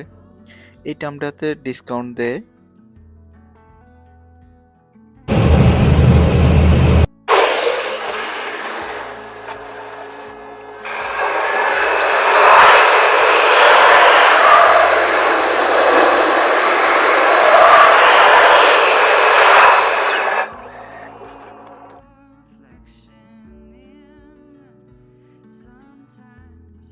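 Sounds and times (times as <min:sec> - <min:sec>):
car wash rushing noise: 0:05.3 - 0:22.0.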